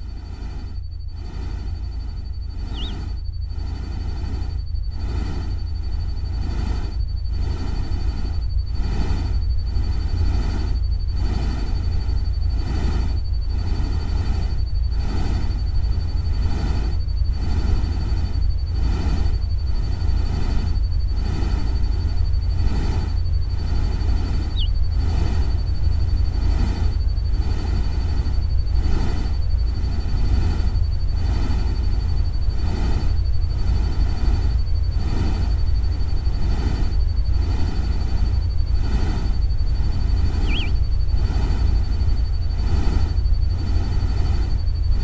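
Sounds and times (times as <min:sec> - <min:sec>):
pulsing noise hiss: 0:00.1 - 0:45.0
short chirp: 0:02.7 - 0:03.0, 0:40.4 - 0:40.8
thin high tone: 0:02.7 - 0:03.0, 0:40.4 - 0:40.8.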